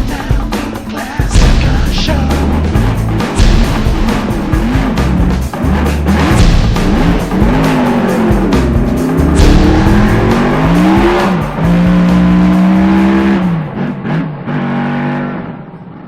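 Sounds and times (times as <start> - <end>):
music: 0.0 - 14.1
car engine revving: 0.0 - 16.0.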